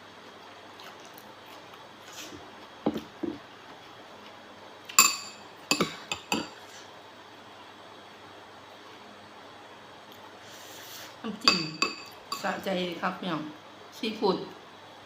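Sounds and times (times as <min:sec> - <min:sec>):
utensils clinking against dishes: 0:04.9 - 0:06.6.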